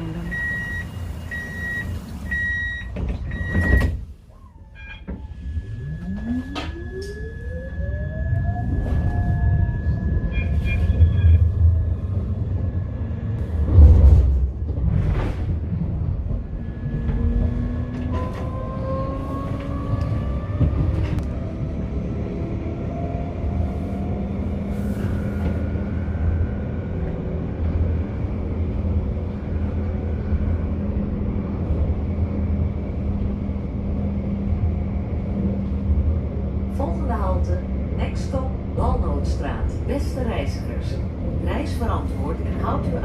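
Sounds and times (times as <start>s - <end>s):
tram wheels rumbling on rails: 0.0s - 43.0s.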